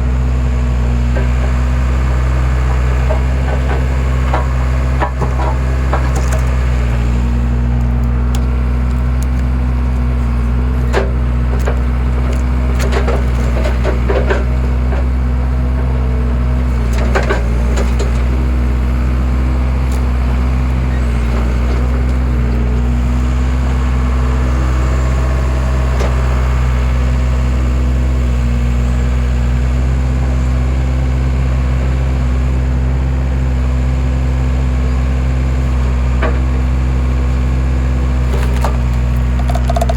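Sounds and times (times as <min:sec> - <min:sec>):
skid steer engine running: 0:00.0 - 0:39.9
wood cracking and splitting: 0:00.6 - 0:27.4, 0:35.6 - 0:39.9.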